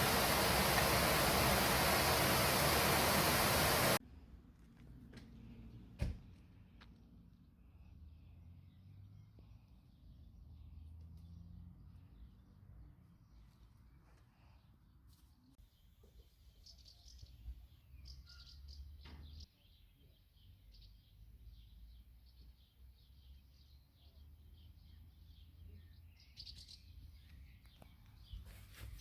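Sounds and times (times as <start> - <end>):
small birds chirping: 0.0 - 4.0, 13.2 - 29.0.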